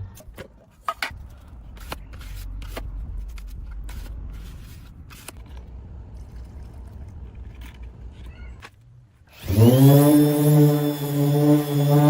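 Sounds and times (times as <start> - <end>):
low steady rumble: 0.0 - 9.2
rustling: 0.5 - 9.4.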